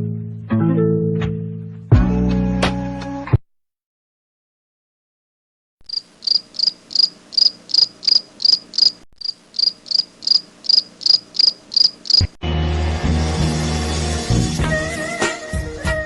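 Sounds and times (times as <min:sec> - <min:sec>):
music: 0:00.0 - 0:03.4, 0:12.4 - 0:16.0
insect chirping: 0:05.8 - 0:12.4.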